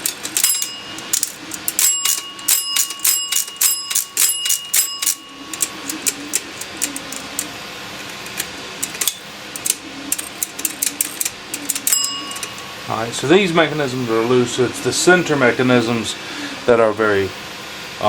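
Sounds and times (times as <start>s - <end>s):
cash register bell ringing: 0.0s - 7.5s, 8.8s - 14.3s
cash register keys clacking: 0.0s - 7.5s, 8.1s - 12.7s.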